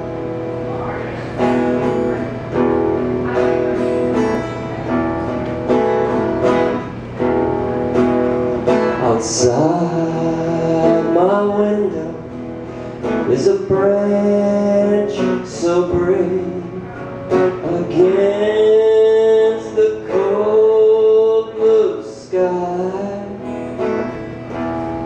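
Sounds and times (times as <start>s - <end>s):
acoustic guitar strumming: 0.0s - 25.0s
man singing: 8.4s - 24.9s.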